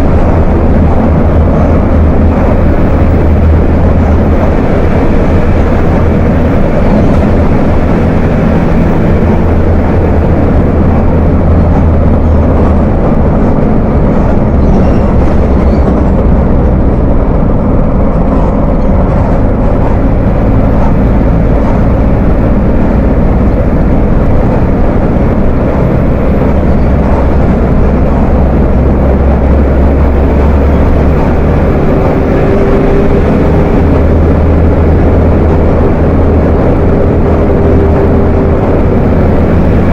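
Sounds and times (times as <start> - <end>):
diesel bus engine rumbling: 0.0 - 39.9.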